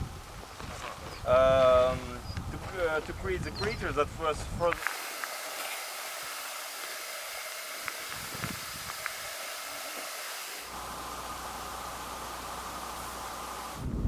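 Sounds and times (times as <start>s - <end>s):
steady background hiss: 4.7s - 14.0s.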